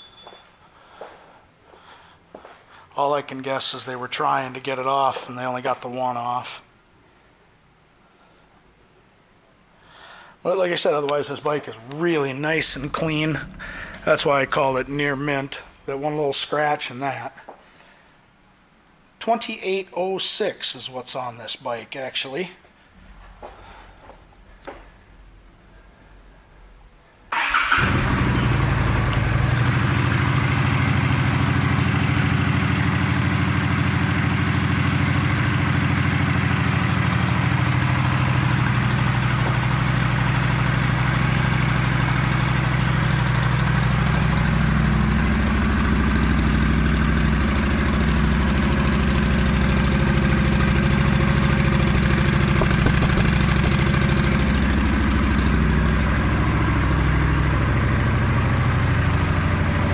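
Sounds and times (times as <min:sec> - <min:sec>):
motorcycle engine starting: 0:12.2 - 0:16.2, 0:27.3 - 0:59.9
motorcycle engine idling: 0:12.5 - 0:16.2, 0:27.4 - 0:59.9.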